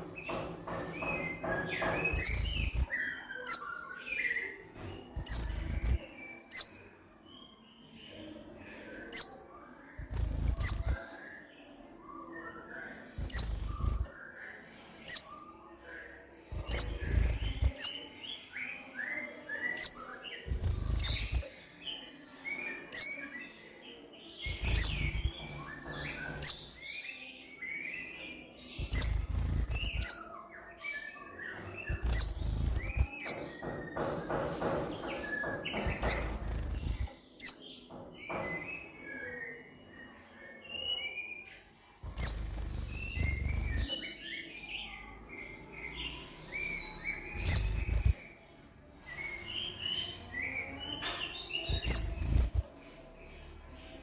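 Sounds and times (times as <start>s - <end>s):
soft bird twittering: 0.0s - 54.0s
low thuds: 0.4s - 2.9s, 5.1s - 6.0s, 10.0s - 11.0s, 13.2s - 14.1s, 20.5s - 21.4s, 24.5s - 26.6s, 28.8s - 30.2s, 31.9s - 37.1s, 42.1s - 43.9s, 47.4s - 48.2s, 51.7s - 52.7s
sunbird chirping: 2.1s - 3.8s, 5.2s - 6.9s, 9.2s - 11.0s, 13.2s - 14.1s, 16.5s - 18.1s, 19.8s - 21.5s, 24.4s - 26.8s, 28.8s - 30.3s, 31.9s - 33.7s, 35.7s - 37.6s, 42.1s - 44.0s, 47.3s - 48.2s, 51.7s - 52.6s.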